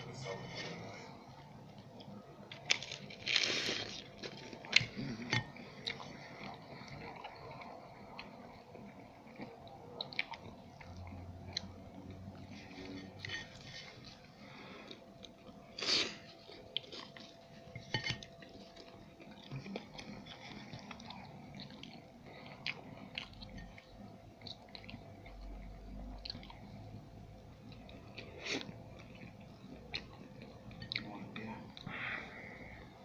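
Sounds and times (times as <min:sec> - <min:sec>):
person chewing pastry: 0:00.3 - 0:33.0
crisp crunches: 0:02.5 - 0:05.0.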